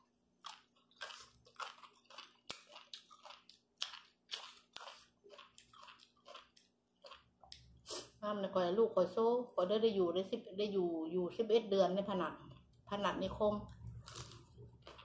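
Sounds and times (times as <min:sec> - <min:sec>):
faint crunching chews: 0:00.0 - 0:08.2, 0:13.7 - 0:15.0.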